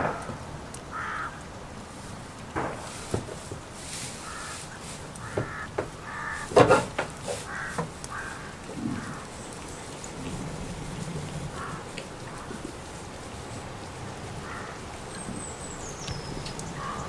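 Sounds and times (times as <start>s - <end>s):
light rain hissing: 0.0s - 17.0s
crow cawing: 0.9s - 1.4s, 4.2s - 6.6s, 7.4s - 9.3s, 11.5s - 11.9s, 14.4s - 14.8s, 16.8s - 17.0s
sharp knocks: 5.2s - 8.0s.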